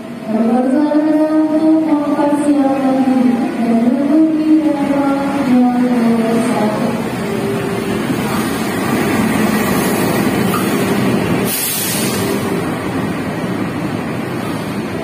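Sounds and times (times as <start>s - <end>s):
train wheels on rails: 3.9s - 15.0s
short hiss of air: 11.4s - 12.4s.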